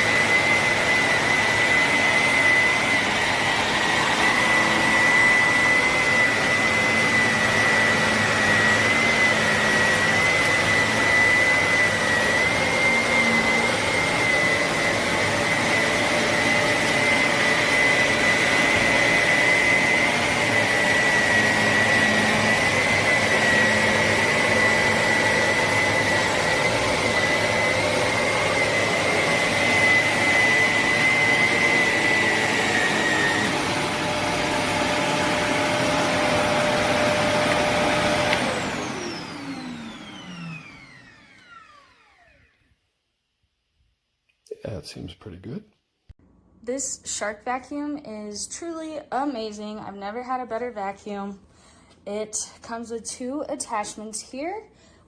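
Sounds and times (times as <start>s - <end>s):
vacuum cleaner running: 0.0s - 42.8s.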